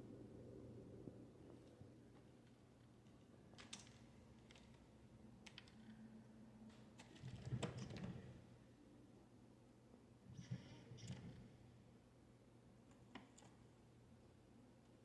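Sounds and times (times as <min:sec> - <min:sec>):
faint clicks and taps: 0:12.8 - 0:13.6.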